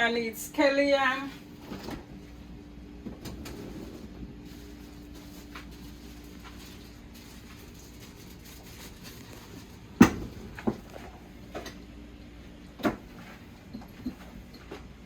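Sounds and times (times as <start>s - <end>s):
faint steady hum: 0.0s - 15.0s
knocks and clunks in kitchen: 3.0s - 4.4s, 9.7s - 15.0s.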